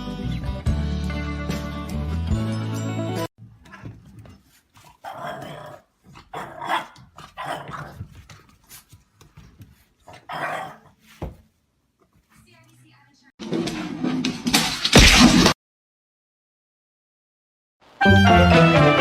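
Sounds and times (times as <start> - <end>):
dog growling and barking: 3.6 - 8.3, 10.0 - 11.0.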